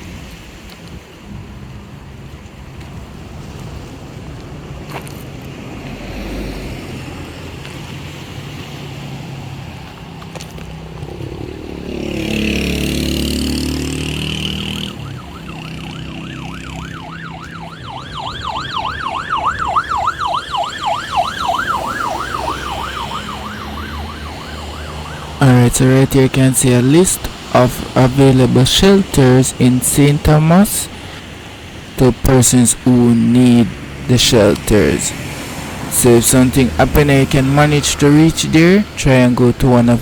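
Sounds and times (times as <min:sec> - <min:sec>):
vehicle passing: 0:04.7 - 0:40.0
emergency siren yelping: 0:14.3 - 0:29.6
background noise: 0:15.6 - 0:40.0.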